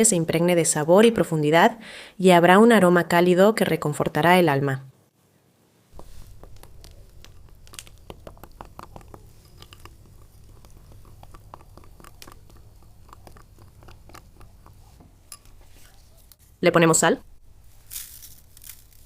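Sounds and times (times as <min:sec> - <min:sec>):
utensil clicking in a bowl: 0:06.3 - 0:16.4.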